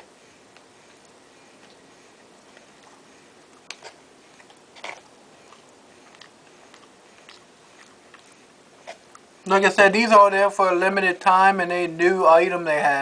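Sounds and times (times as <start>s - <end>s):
chewing food: 0.0s - 9.5s.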